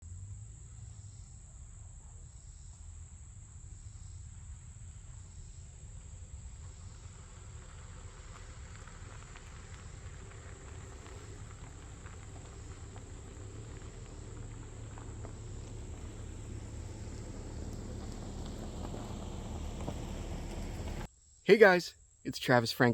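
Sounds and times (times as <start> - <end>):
light crackles and rustles: 4.4 - 21.1.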